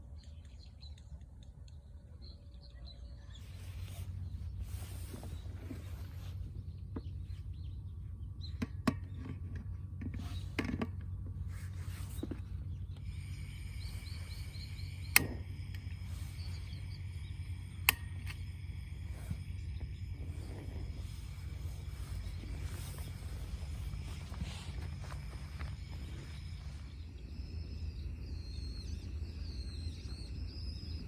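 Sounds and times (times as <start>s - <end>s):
low rumble: 10.8s - 31.0s
high chirping: 12.0s - 31.0s.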